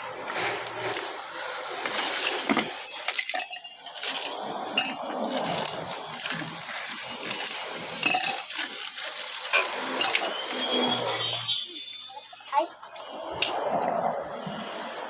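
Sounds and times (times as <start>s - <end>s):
dishes and tableware clinking: 2.0s - 8.7s.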